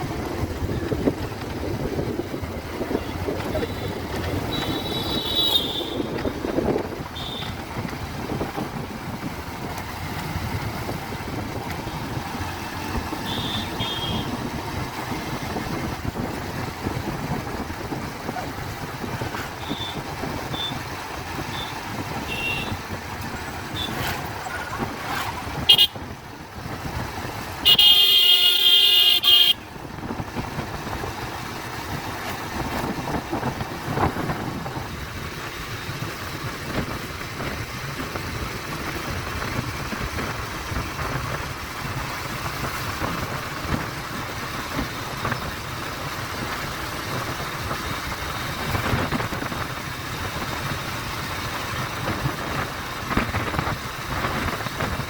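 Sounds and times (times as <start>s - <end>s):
motorcycle road and wind noise: 0.0s - 55.0s.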